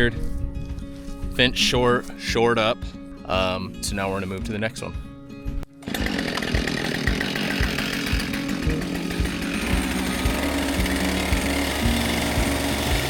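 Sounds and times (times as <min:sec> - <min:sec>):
chainsaw engine running: 0:05.8 - 0:13.0.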